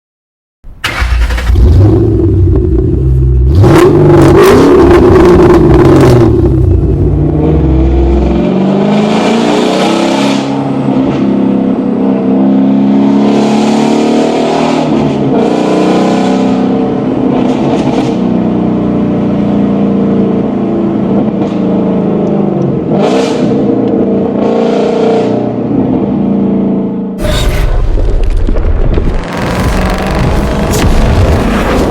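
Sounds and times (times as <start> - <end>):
car engine revving: 0.8 - 11.4, 28.3 - 31.9.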